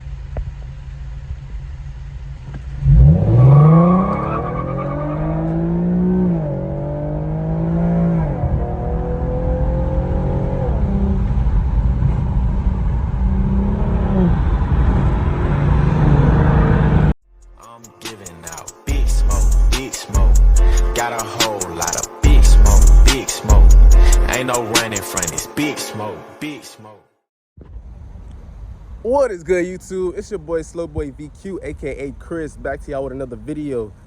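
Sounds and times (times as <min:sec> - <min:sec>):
car engine revving: 0:01.8 - 0:17.2.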